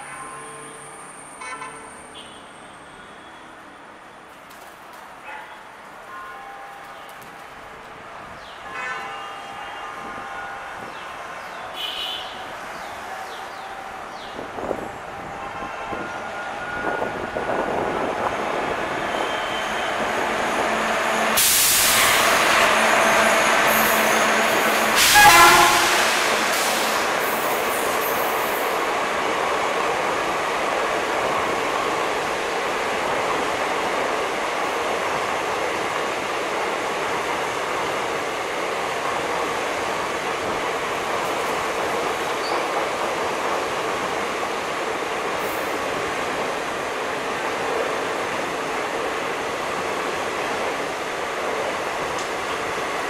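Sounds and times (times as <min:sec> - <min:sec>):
train horn blast: 0:08.6 - 0:11.1, 0:21.4 - 0:27.0
train wheels rumbling: 0:12.3 - 0:53.0.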